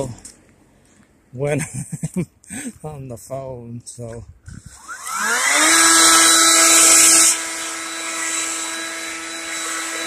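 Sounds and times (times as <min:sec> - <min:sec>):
leaf blower whine: 0:04.6 - 0:10.0.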